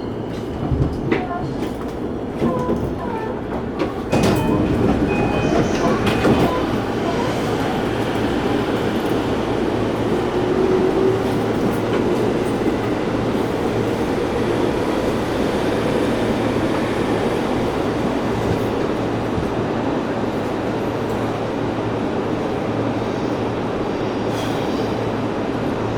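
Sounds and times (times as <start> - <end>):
train wheels rumbling on rails: 0.0 - 25.9.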